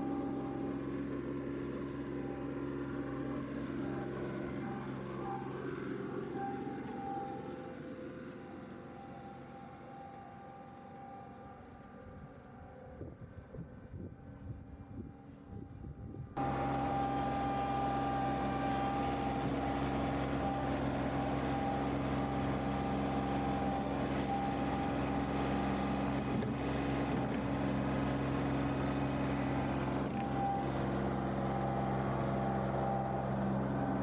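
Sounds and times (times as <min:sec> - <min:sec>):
tractor diesel engine running: 0:00.0 - 0:34.0
wind noise: 0:13.0 - 0:16.4.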